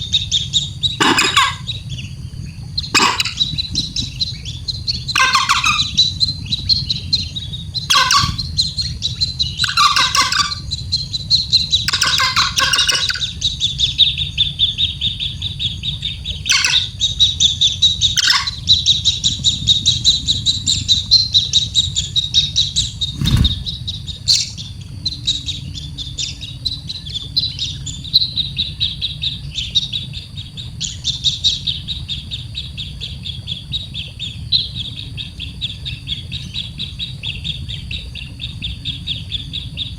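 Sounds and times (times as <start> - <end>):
baby bird chirping: 0.9 - 1.7, 2.8 - 4.1, 5.1 - 6.2, 7.9 - 8.8, 9.6 - 10.7, 11.5 - 13.3, 16.5 - 16.9, 18.0 - 18.7.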